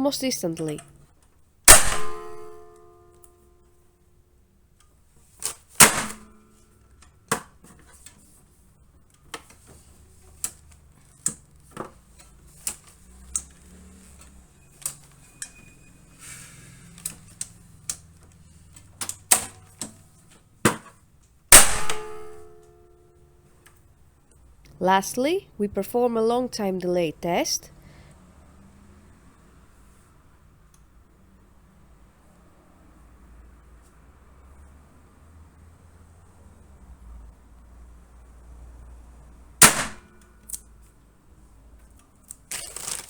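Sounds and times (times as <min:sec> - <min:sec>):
loud metallic clangs: 0:01.7 - 0:02.8, 0:21.5 - 0:22.6.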